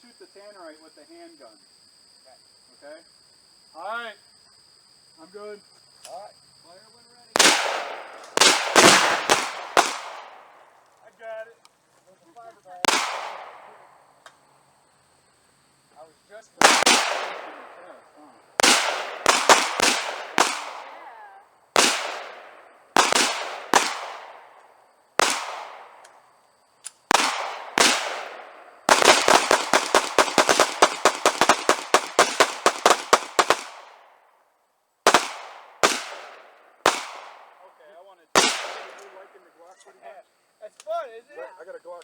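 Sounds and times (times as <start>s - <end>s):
gunshots: 7.4s - 10.6s, 12.8s - 14.1s, 16.6s - 21.2s, 21.8s - 24.6s, 25.2s - 26.1s, 27.1s - 34.1s, 35.0s - 37.7s, 38.4s - 39.4s.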